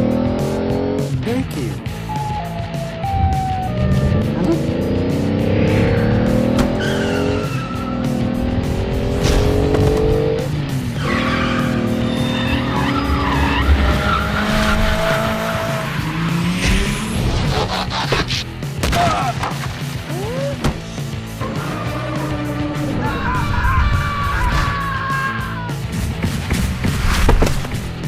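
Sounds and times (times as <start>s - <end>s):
car engine revving: 0.0s - 20.1s, 20.7s - 23.4s
background music: 0.0s - 28.0s
tyre skid: 6.4s - 8.3s.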